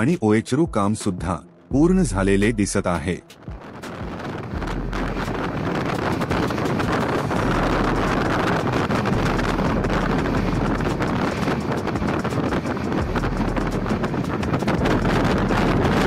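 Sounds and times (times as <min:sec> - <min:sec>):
train rumble: 0:01.2 - 0:16.0
wind buffeting microphone: 0:01.2 - 0:16.0
wheels clattering on track: 0:05.2 - 0:16.0.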